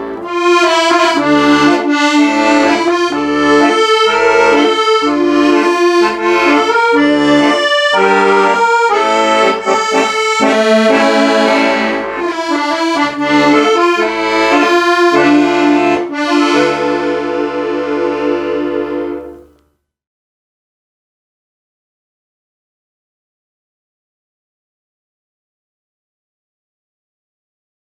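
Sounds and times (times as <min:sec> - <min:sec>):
accordion music: 0:00.0 - 0:19.6.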